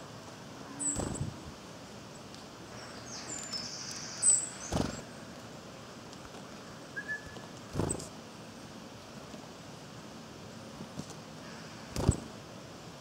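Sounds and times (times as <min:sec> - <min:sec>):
small birds calling: 0:00.6 - 0:01.5, 0:02.1 - 0:05.3.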